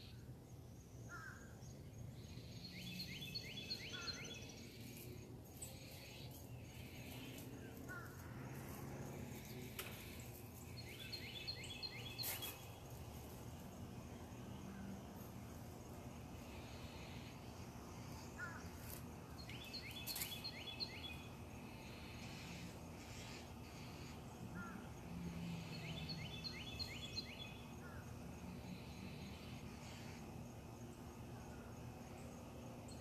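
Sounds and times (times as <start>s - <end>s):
low background hum: 0.0s - 33.0s
birds calling: 2.2s - 13.3s, 16.4s - 24.9s
high falling bird chirps: 9.4s - 13.2s, 18.8s - 21.3s.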